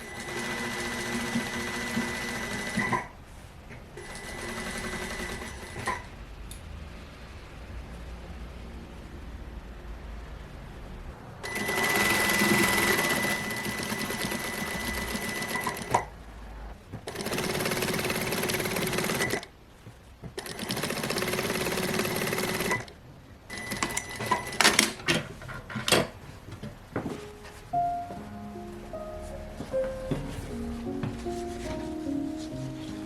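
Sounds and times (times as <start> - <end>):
sewing machine stitching: 0.0 - 3.1, 4.0 - 6.1, 11.4 - 16.1, 17.0 - 19.5, 20.4 - 25.1.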